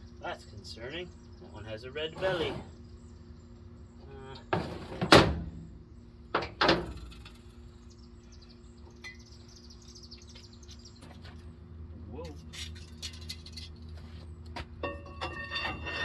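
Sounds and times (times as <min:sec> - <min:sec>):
steady low hum: 0:00.0 - 0:16.0
sharp knocks and clanks: 0:14.6 - 0:16.0.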